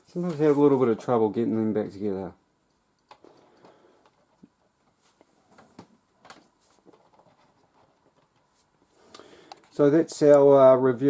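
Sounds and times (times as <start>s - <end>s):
paper pamphlet rustling: 0.1s - 1.1s.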